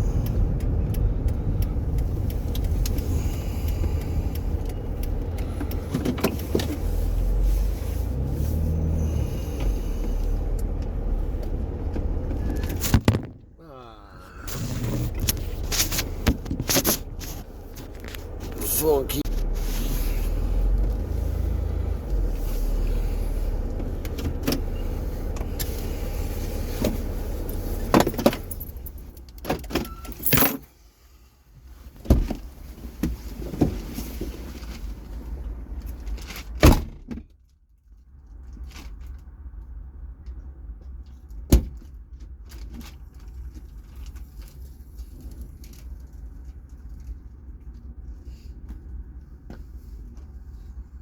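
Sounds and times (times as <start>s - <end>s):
vehicle running: 0.0s - 29.3s
metal jingling and rattling: 28.0s - 29.2s.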